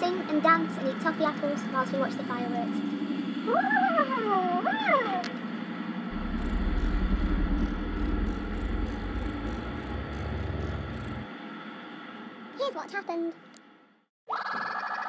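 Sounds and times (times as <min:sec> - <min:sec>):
car engine rumble: 0:06.1 - 0:11.3.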